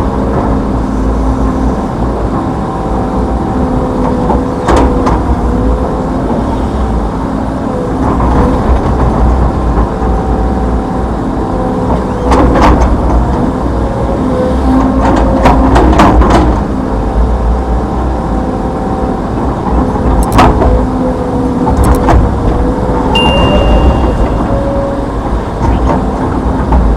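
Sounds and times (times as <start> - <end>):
excavator diesel engine droning: 0.0 - 26.9
sharp metallic knocks: 23.1 - 26.0.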